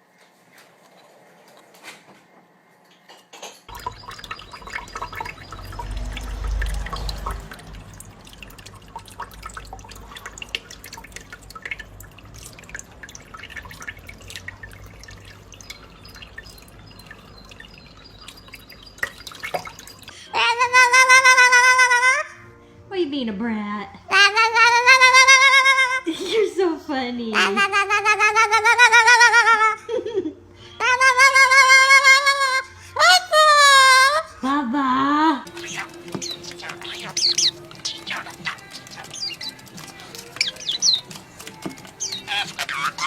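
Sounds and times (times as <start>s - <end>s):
water dripping and splashing: 3.7s - 20.3s, 35.4s - 43.0s
small clicks and taps: 35.8s - 42.6s.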